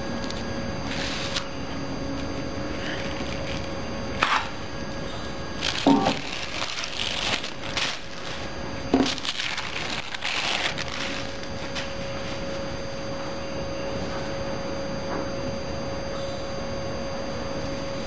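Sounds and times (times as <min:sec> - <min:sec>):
steady hum: 0:00.0 - 0:18.0
rustling handling noise: 0:05.6 - 0:12.7.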